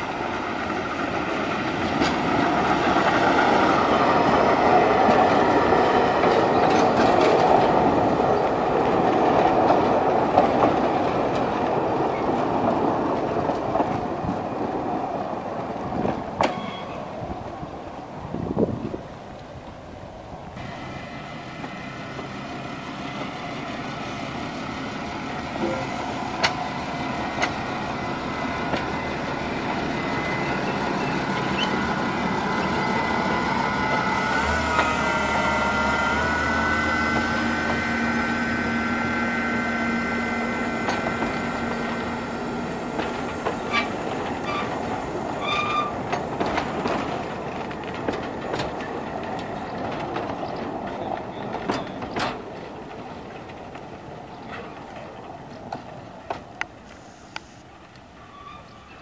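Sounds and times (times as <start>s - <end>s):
diesel railcar engine passing: 0.0s - 59.0s
wheels clicking over rail joints: 0.6s - 17.2s, 25.2s - 35.3s, 40.5s - 59.0s.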